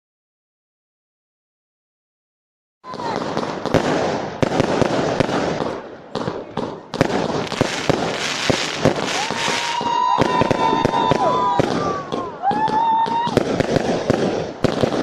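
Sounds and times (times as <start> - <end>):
fireworks crackling and banging: 2.9 - 15.0
firework whistle rising: 8.2 - 13.6.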